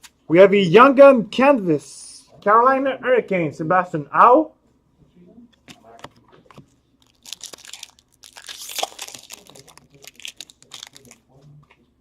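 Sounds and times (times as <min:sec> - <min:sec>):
foil wrapper tearing and crinkling: 0:07.0 - 0:11.2
cards rustling: 0:07.0 - 0:11.3.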